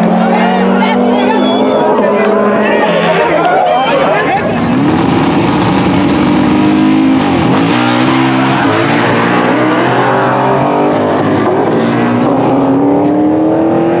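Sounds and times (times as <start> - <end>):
car engine at high revs: 4.0 - 14.0.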